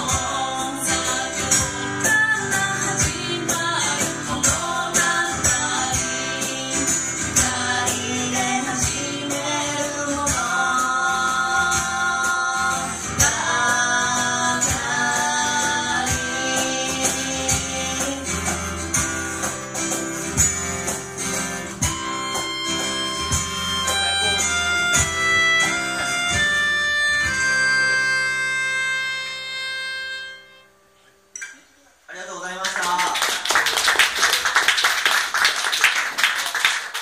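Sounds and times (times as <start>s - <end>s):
person singing: 0.0s - 18.8s
guitar: 0.0s - 32.0s
hand percussion: 16.0s - 27.9s.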